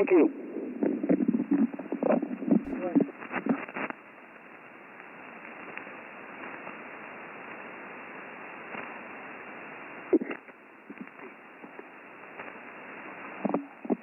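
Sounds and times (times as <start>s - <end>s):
shortwave radio hiss: 0.0s - 14.0s
radio transmission burst: 2.7s - 3.9s.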